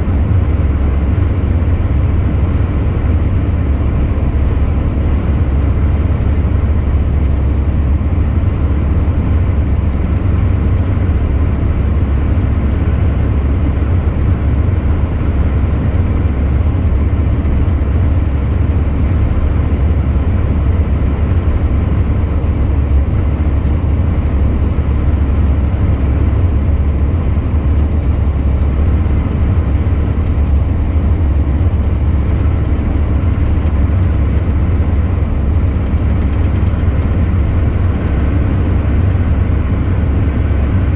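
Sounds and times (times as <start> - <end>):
truck engine and road noise: 0.0 - 40.9.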